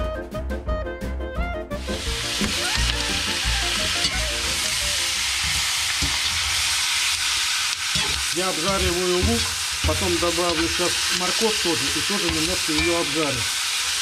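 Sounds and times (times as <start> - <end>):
background music: 0.0 - 6.4
onions sizzling in hot oil: 1.8 - 14.0.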